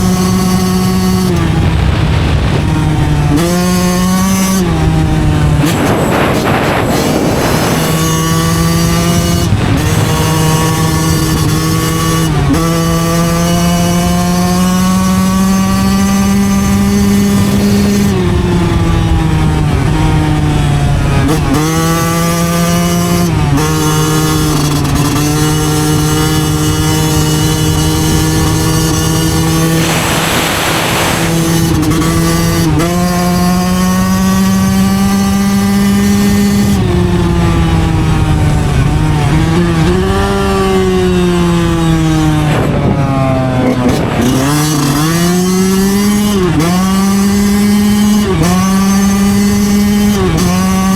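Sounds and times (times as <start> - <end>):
motorcycle two-stroke engine revving: 0.0 - 50.9
short rushing hiss: 29.6 - 31.7.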